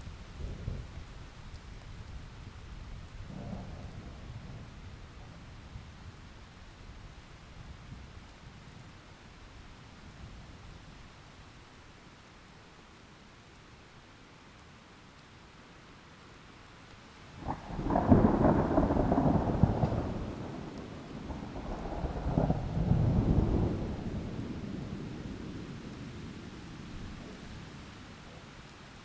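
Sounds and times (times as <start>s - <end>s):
thunder rumbling: 3.0s - 6.3s, 17.4s - 27.5s
rain hissing: 17.0s - 29.0s.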